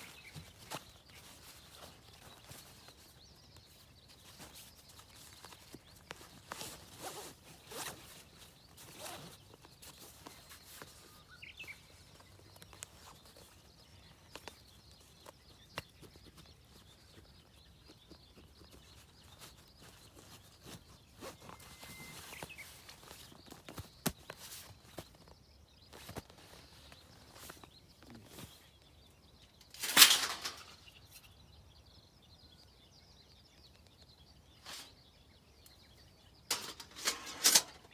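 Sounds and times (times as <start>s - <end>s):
fabric zipping and rustling: 6.4s - 9.5s.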